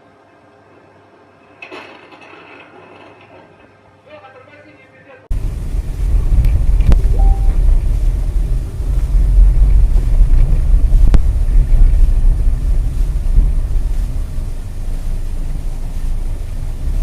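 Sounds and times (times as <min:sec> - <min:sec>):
car rumbling with road noise: 0:05.3 - 0:17.0
wind noise: 0:05.3 - 0:17.0.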